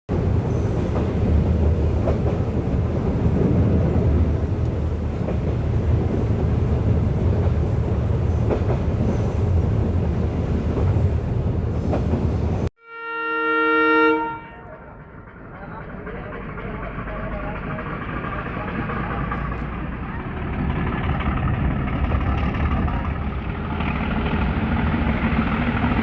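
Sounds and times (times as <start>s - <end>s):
train rumbling on track: 0.1s - 12.7s, 14.1s - 26.0s
wheels clicking on rails: 14.7s - 26.0s.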